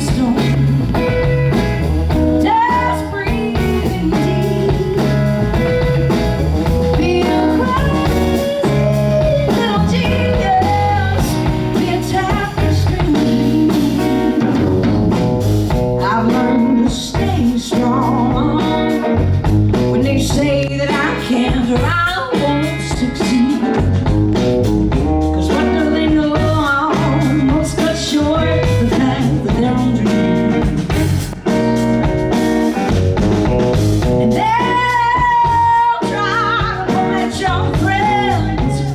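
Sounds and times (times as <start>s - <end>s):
bending guitar lead line: 0.0s - 38.9s
blues band playing: 0.0s - 38.9s.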